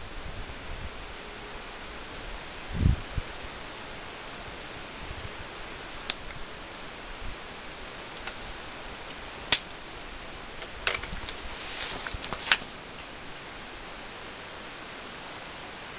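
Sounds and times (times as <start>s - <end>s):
steady hiss: 0.0s - 15.9s
brief rustle: 10.6s - 13.1s.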